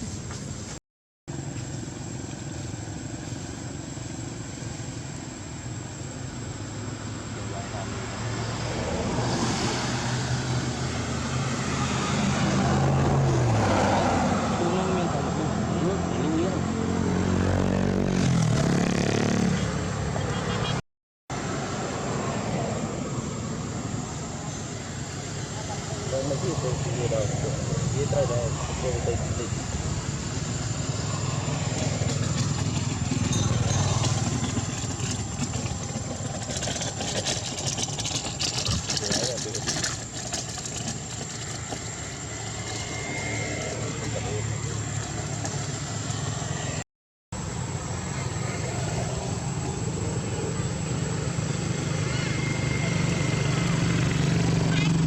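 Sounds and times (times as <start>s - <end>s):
engine idling hum: 22.5s - 46.8s
high-pitched whine: 47.4s - 55.0s.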